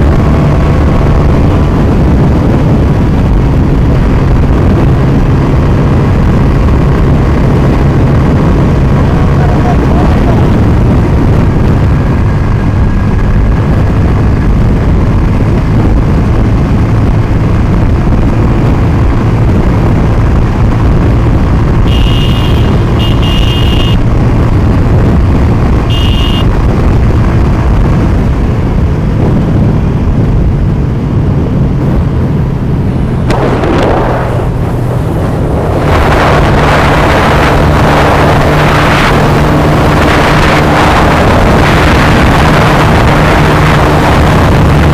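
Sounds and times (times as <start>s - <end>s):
motorcycle engine running: 0.0s - 44.9s
road noise: 0.0s - 44.9s
wind on microphone: 0.0s - 44.9s
short high beeps: 21.9s - 24.0s, 25.9s - 26.5s.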